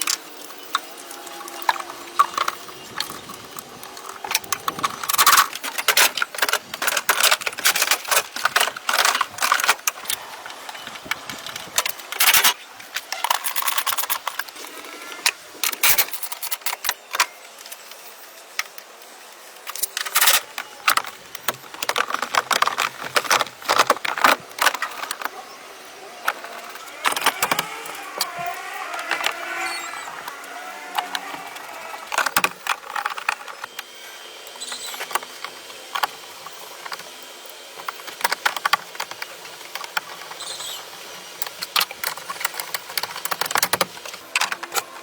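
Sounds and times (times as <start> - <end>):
small hard objects clinking: 19.7 - 33.7.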